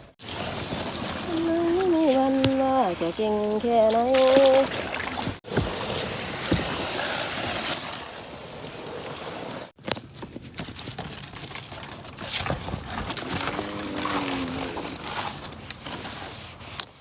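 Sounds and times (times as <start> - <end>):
water sloshing around boat: 0.0 - 17.0.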